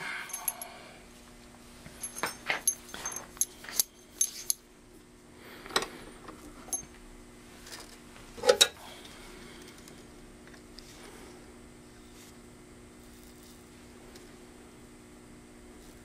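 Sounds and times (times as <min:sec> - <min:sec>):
metal connector and tools clinking: 0:00.3 - 0:00.7, 0:02.0 - 0:04.6.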